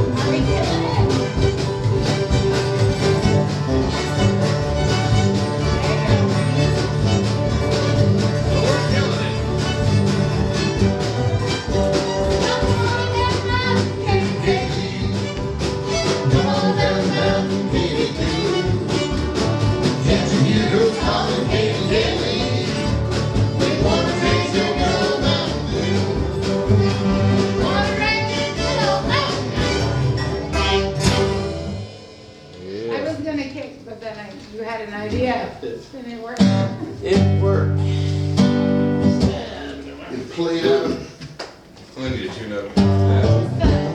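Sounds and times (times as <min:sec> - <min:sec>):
fiddle melody: 0:00.0 - 0:31.6
strummed guitar: 0:00.0 - 0:33.0, 0:36.4 - 0:40.1, 0:42.6 - 0:43.9
acoustic bluegrass band playing: 0:00.0 - 0:43.9.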